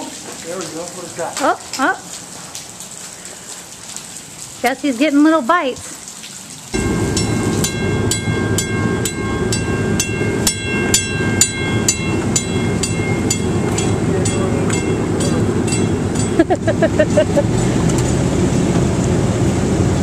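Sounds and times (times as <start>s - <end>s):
wheels clacking over rail joints: 6.8s - 16.5s
train rumbling past: 6.8s - 20.0s.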